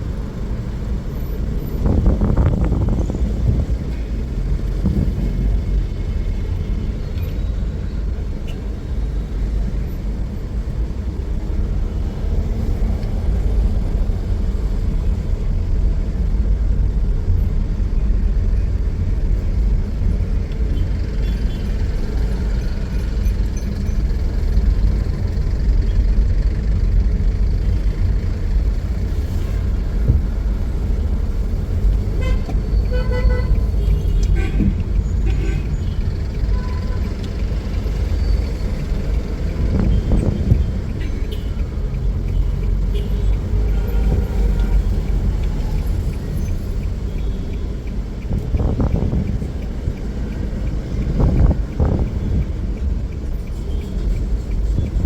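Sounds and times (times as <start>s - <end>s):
low rumble of traffic: 0.0s - 55.0s
car horns honking: 32.1s - 37.2s.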